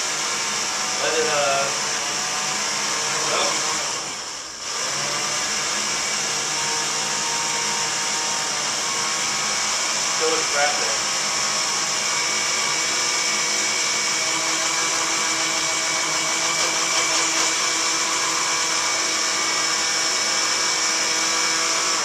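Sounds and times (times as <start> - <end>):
blender motor running: 0.0 - 22.0.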